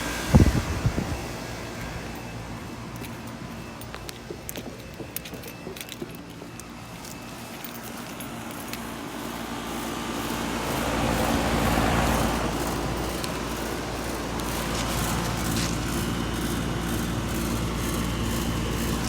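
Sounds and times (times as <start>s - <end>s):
fan rushing air: 0.0s - 3.8s
compressor hum: 0.0s - 19.0s.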